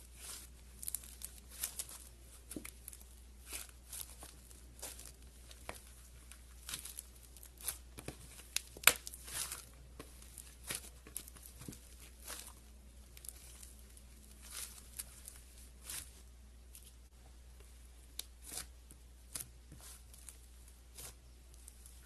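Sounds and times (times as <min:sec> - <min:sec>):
slime squelching and popping: 0:00.1 - 0:16.2.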